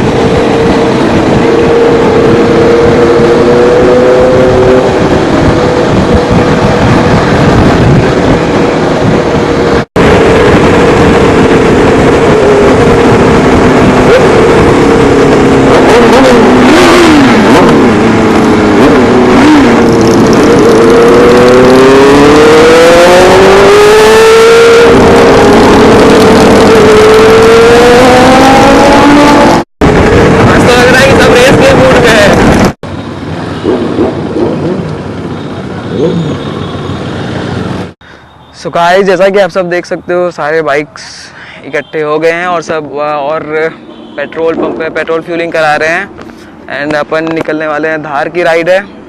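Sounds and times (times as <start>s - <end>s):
wind on microphone: 0.0s - 36.5s
motorcycle engine: 0.0s - 38.1s.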